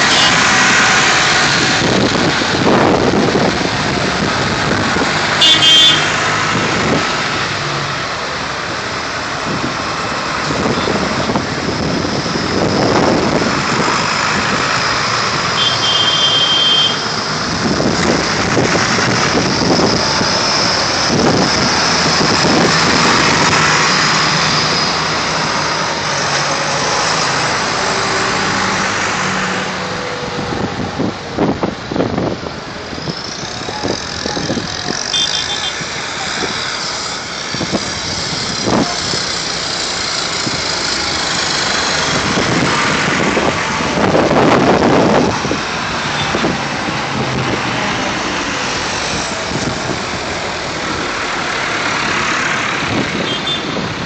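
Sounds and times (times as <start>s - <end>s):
horn tooting: 0.0s - 0.5s, 5.3s - 6.2s, 15.5s - 17.1s, 35.0s - 35.8s, 53.2s - 53.9s
tractor engines driving past: 0.0s - 54.0s.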